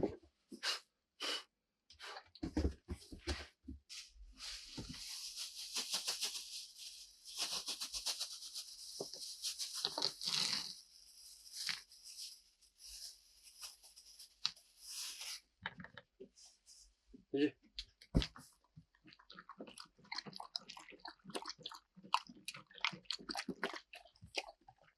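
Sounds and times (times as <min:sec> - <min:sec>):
crinkly rustling: 0:04.5 - 0:15.5.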